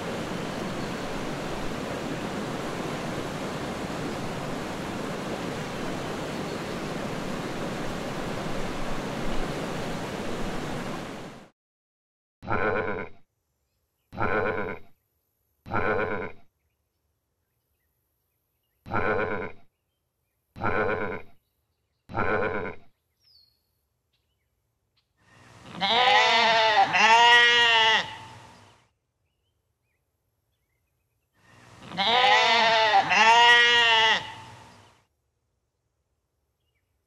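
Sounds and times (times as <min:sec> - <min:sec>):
goat bleating: 0:25.6 - 0:28.4, 0:31.8 - 0:34.6
sheep bleating: 0:25.6 - 0:28.4, 0:31.8 - 0:34.5.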